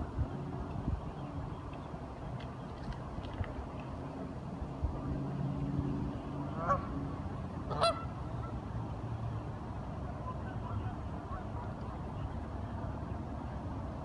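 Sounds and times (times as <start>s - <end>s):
ducks calling: 7.7s - 8.5s.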